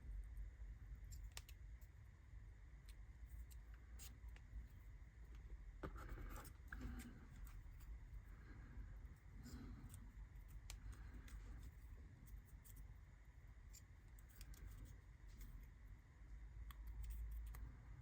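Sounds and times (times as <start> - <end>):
low steady hum: 0.0 - 18.0
small clicks and scrapes of parts: 1.0 - 1.9, 2.8 - 8.0, 9.4 - 15.8, 16.6 - 18.0.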